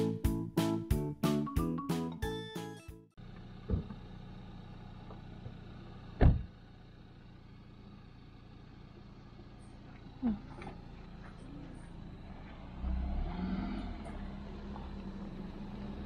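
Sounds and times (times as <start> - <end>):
background music: 0.0 - 3.1
loud thump: 3.7 - 4.0, 6.2 - 6.5.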